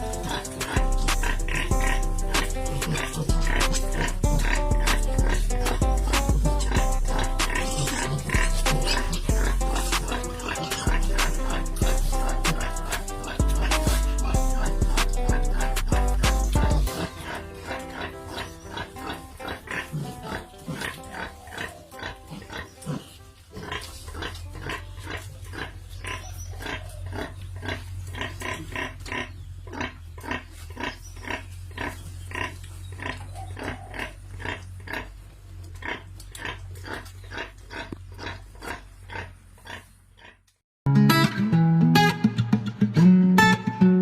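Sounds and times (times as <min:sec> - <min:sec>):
strummed guitar: 0:00.0 - 0:23.4, 0:40.9 - 0:44.0
pigs grunting: 0:00.0 - 0:40.5.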